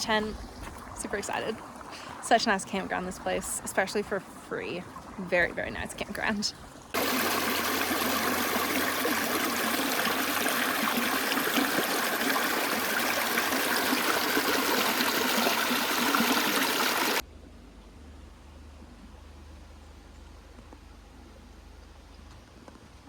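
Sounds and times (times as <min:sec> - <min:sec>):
creek water rushing: 0:00.0 - 0:06.1, 0:06.9 - 0:17.2
faint low hum: 0:17.2 - 0:23.0.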